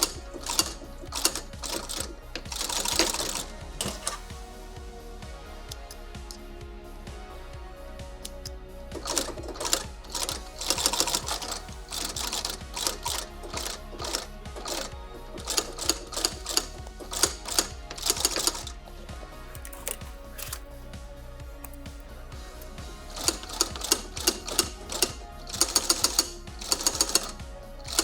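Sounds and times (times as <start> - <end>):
sewing machine stitching leather: 0.0 - 4.2, 8.3 - 18.7, 23.1 - 28.0
background music: 0.0 - 28.0.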